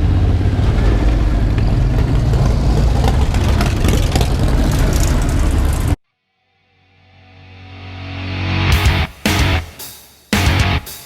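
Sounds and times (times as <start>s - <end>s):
motorcycle engines rumbling: 0.0s - 6.0s.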